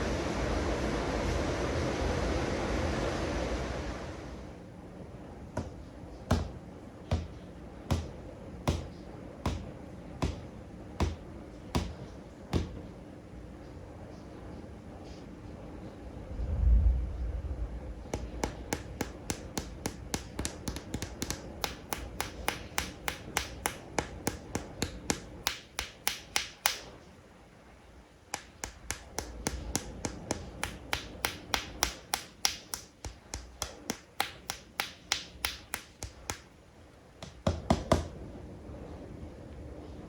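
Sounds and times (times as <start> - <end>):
fingernails tapping on plastic toys: 5.6 - 12.8, 18.2 - 27.0, 28.3 - 36.6, 37.2 - 38.2.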